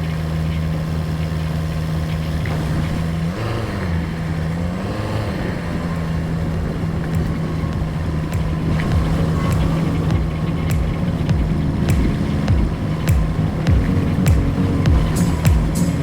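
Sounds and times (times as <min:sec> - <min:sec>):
engine running: 0:00.0 - 0:16.0
sharp knocks: 0:07.1 - 0:16.0.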